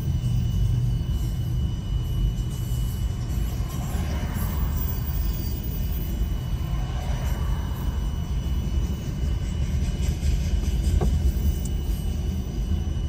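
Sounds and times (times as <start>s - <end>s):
freight train rumbling past: 0.0s - 13.0s
brief train squeal: 0.3s - 13.0s.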